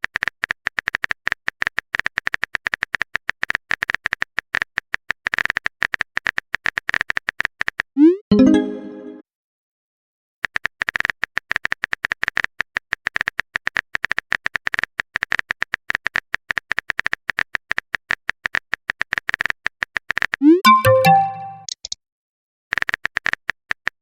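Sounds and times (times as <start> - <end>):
chime tones: 8.3 - 9.2, 20.5 - 21.7.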